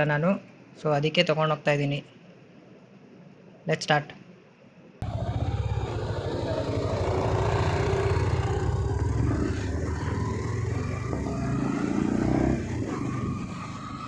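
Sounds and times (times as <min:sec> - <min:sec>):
motorcycle engine running: 0:05.0 - 0:14.0.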